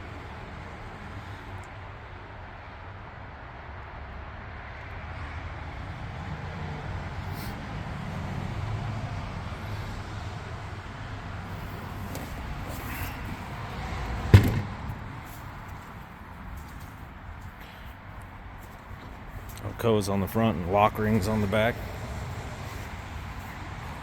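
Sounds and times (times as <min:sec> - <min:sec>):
distant vehicle passing: 0:04.8 - 0:24.0
sharp thump: 0:14.3 - 0:15.1.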